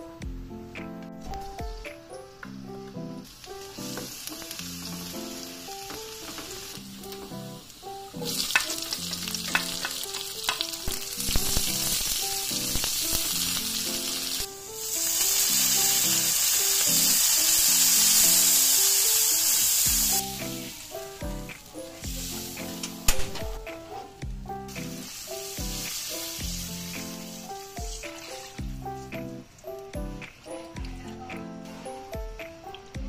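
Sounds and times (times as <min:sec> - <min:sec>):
garlic and onion sizzling: 0:01.2 - 0:32.9.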